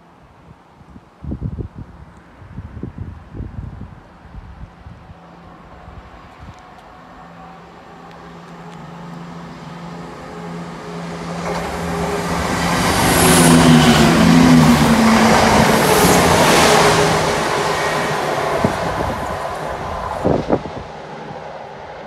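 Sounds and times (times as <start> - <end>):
diesel train engines droning: 4.8 - 22.0
train wheels rushing on rails: 7.6 - 22.0.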